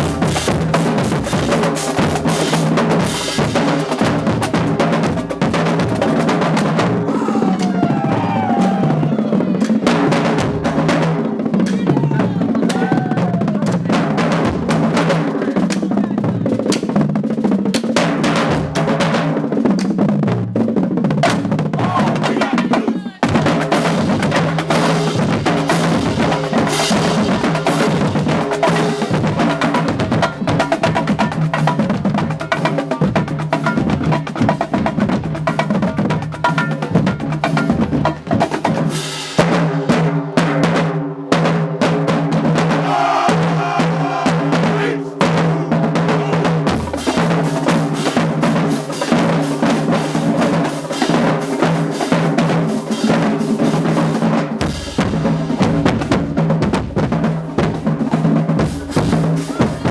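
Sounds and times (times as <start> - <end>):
pitched bass drums: 0.0 - 7.2
snare drum rolls: 16.6 - 59.9.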